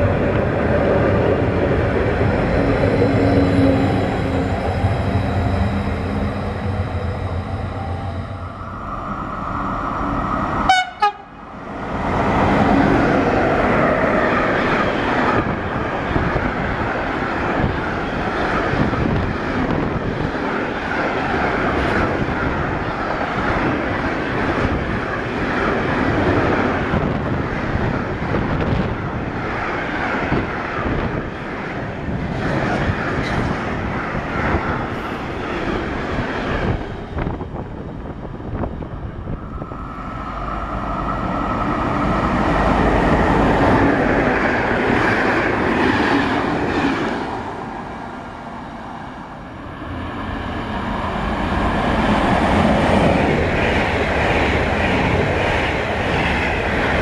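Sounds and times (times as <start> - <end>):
train wheels on rail: 0.0 - 57.0
train horn toot: 10.6 - 11.4.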